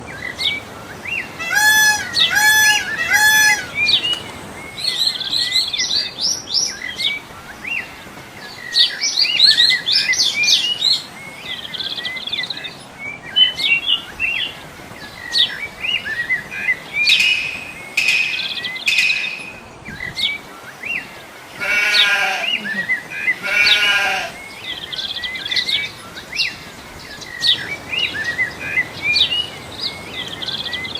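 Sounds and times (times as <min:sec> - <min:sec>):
longer lower bird calls: 0:00.0 - 0:07.9, 0:08.6 - 0:30.9
birds chirping and trilling: 0:00.0 - 0:30.9
clear pitched bird notes: 0:01.4 - 0:05.6.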